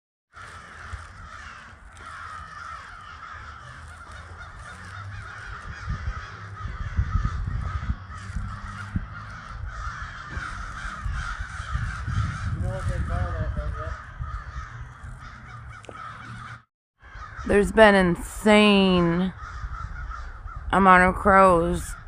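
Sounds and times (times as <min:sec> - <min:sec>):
crows cawing: 0:00.3 - 0:17.6, 0:19.0 - 0:21.0
low microphone rumble: 0:03.5 - 0:16.6.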